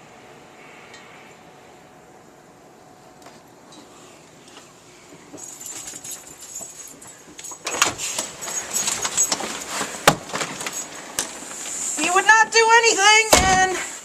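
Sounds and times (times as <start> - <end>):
rustling: 5.3 - 14.0
metal jingling: 5.4 - 7.7.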